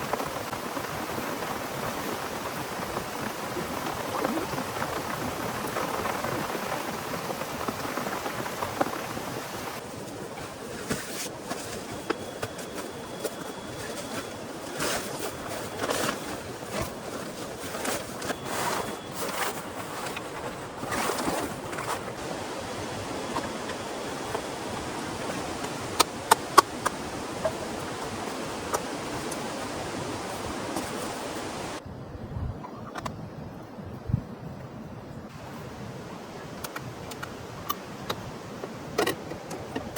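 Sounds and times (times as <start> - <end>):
heavy rain falling: 0.0 - 10.7, 11.3 - 31.8.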